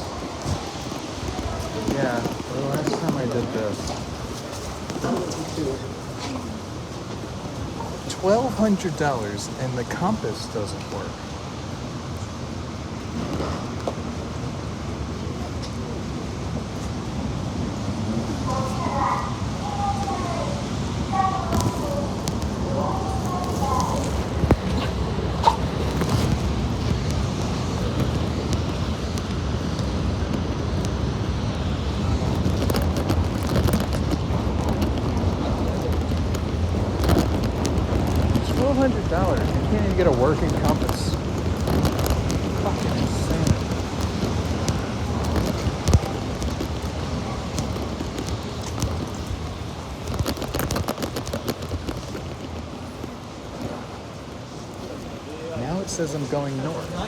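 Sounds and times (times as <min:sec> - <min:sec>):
steady low rumble: 0:00.0 - 0:56.3
pouring rain: 0:00.0 - 0:57.0
street traffic: 0:00.0 - 0:57.0
wind buffeting microphone: 0:00.0 - 0:57.0.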